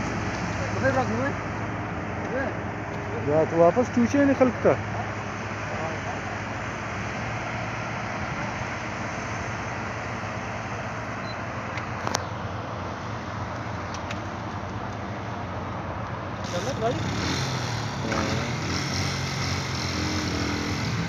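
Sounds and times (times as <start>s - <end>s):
heavy truck engine running: 16.4s - 21.0s.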